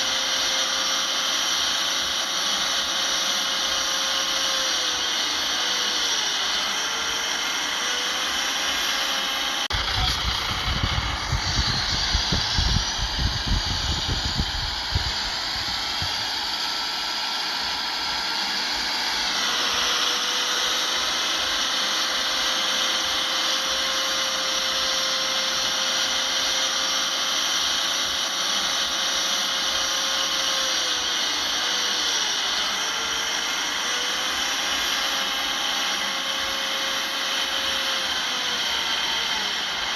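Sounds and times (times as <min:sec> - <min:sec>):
heavy machinery diesel engine: 0:09.7 - 0:16.8.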